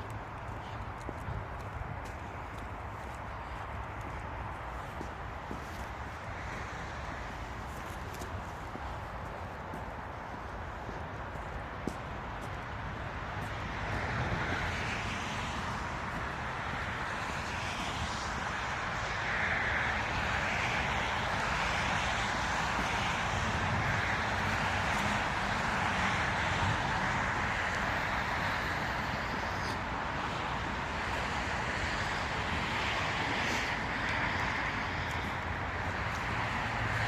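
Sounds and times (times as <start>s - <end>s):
footsteps crunching in snow: 0.0s - 18.4s
city traffic rumble: 0.0s - 37.0s.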